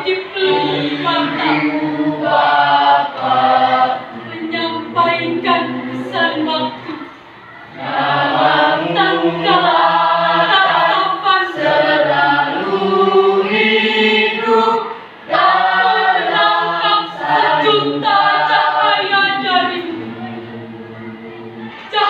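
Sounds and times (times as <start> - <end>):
choir singing: 0.0 - 7.0, 7.7 - 22.0.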